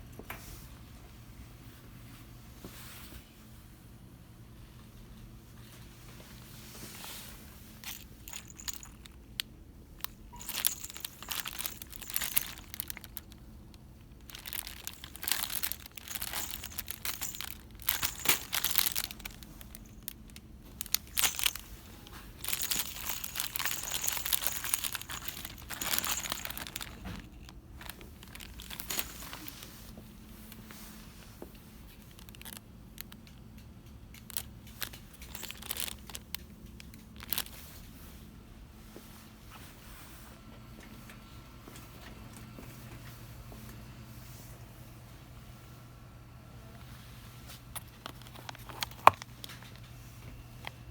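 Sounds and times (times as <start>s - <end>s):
packaging crinkling: 7.8s - 29.9s, 31.9s - 33.4s, 34.1s - 37.6s, 47.8s - 49.9s.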